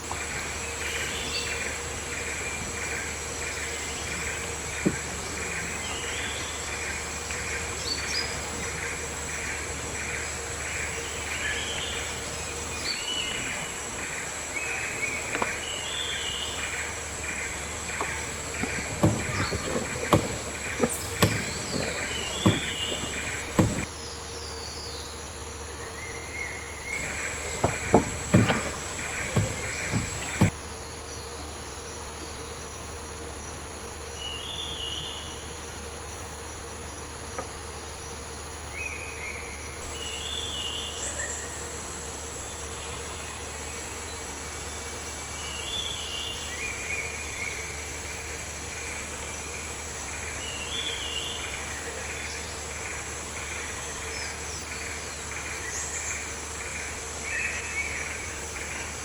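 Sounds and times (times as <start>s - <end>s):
sharp knocks and thumps: 0.0s - 6.2s, 17.1s - 23.9s, 26.9s - 30.6s.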